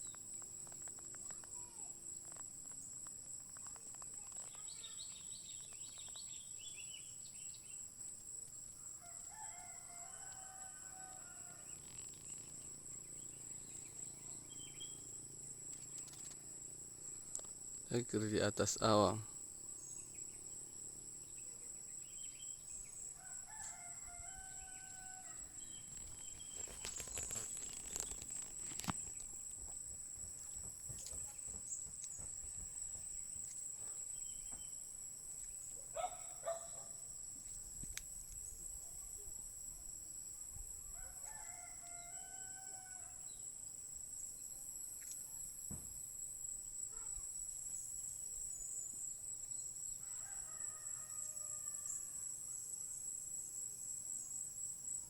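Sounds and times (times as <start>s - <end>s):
insect trill: 0.0s - 55.0s
roosters crowing: 9.0s - 11.9s, 23.2s - 25.6s, 41.0s - 43.2s, 50.0s - 52.1s
clicks and rustling: 25.9s - 29.4s.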